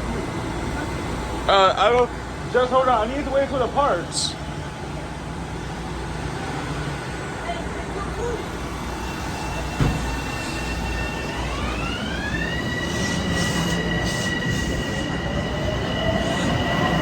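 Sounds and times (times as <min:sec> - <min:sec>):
low rumble of train: 0:00.0 - 0:17.0
electric train propulsion whine: 0:08.4 - 0:17.0
single knock: 0:09.8 - 0:10.1.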